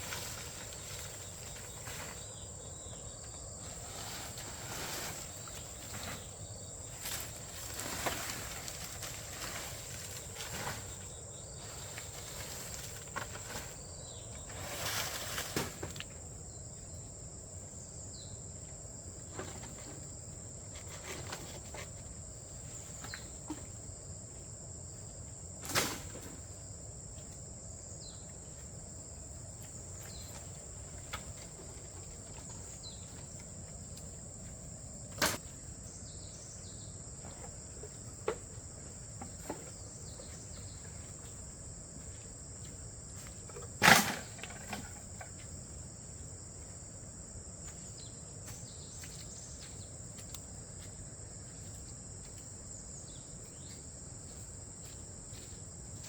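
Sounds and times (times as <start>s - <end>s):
high thin insect chorus: 0.0s - 56.0s
short rustle: 3.6s - 16.0s.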